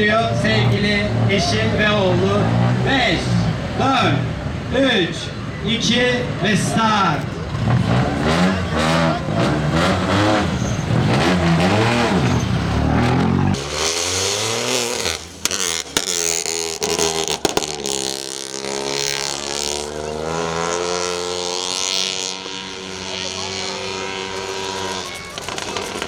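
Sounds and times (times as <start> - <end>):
rally car engine accelerating: 0.0 - 26.0
sharp cracks: 13.0 - 19.5, 24.8 - 26.0.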